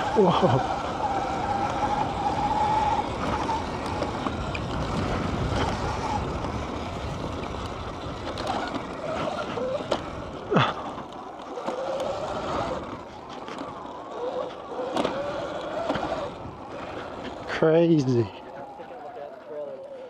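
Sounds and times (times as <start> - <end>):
tyre noise on dirt: 0.0 - 19.0
electric motor whine: 0.0 - 20.0
wind on microphone: 0.9 - 10.4.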